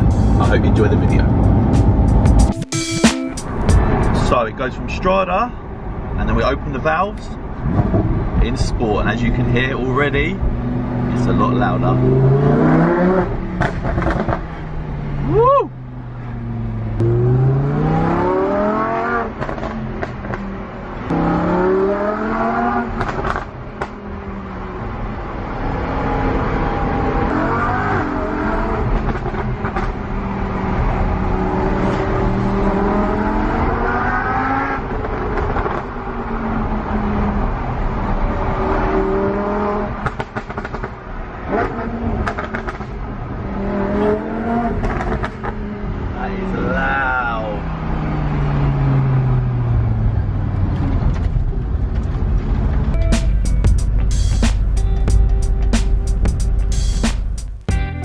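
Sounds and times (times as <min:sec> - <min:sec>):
sports car engine accelerating: 0:00.0 - 0:02.5, 0:07.4 - 0:46.9, 0:47.6 - 0:58.0
exhaust pops: 0:40.0 - 0:41.0, 0:41.6 - 0:43.0.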